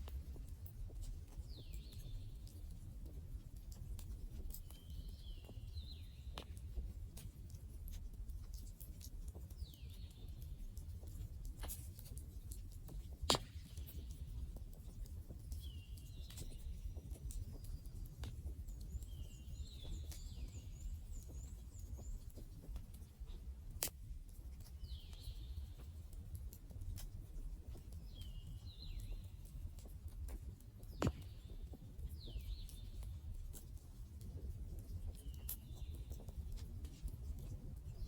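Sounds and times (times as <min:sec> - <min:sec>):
burning wood popping: 0:28.0 - 0:33.6.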